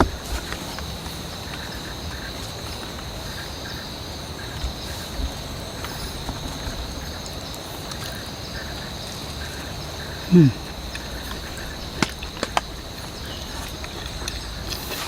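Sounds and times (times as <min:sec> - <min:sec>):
insects shrilling: 0:00.0 - 0:15.0
rain hiss: 0:00.0 - 0:15.0
faint short calls: 0:10.2 - 0:11.8.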